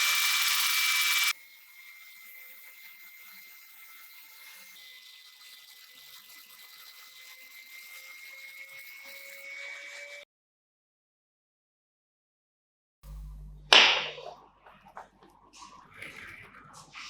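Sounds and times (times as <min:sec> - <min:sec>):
small electric motor whining: 0:00.0 - 0:10.2.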